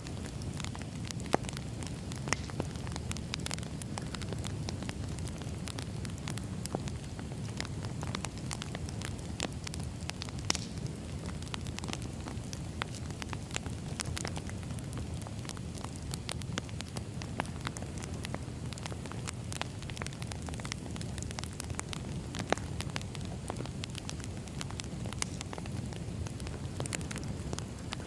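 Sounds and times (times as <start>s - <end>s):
firewood crackling and popping: 0.0s - 28.0s
low rush of flame: 0.0s - 28.0s.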